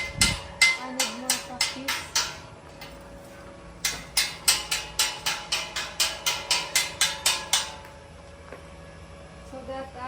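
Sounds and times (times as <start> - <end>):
hammer tapping on steel: 0.0 - 3.0, 3.8 - 8.0.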